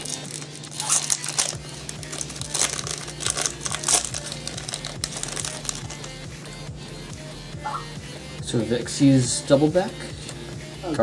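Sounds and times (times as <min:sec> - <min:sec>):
foil wrapper crinkling: 0:00.0 - 0:06.3
background music: 0:00.0 - 0:11.0.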